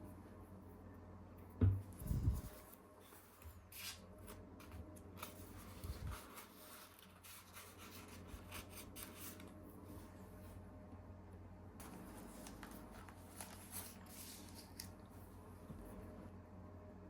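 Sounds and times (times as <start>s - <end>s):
soft rubbing and handling: 1.9s - 10.7s, 11.8s - 16.2s.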